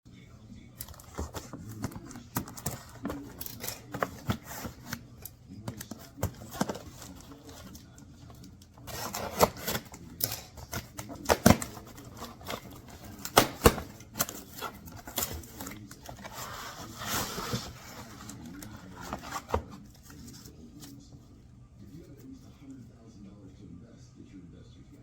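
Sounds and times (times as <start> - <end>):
rustling of objects handled: 0.8 - 22.7.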